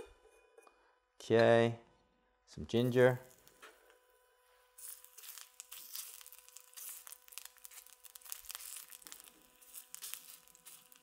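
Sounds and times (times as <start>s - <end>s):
ginger frying in hot oil: 2.8s - 3.6s, 4.8s - 11.0s.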